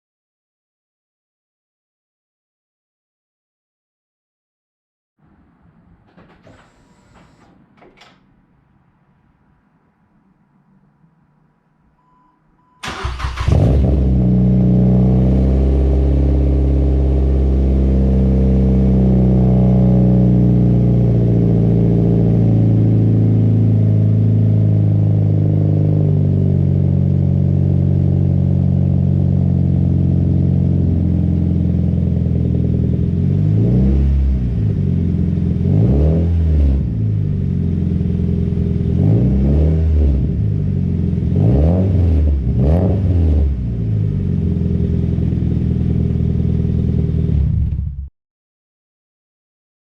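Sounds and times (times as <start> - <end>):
engine cranking: 12.8 - 13.9
engine revving in throttle blips: 12.8 - 48.0.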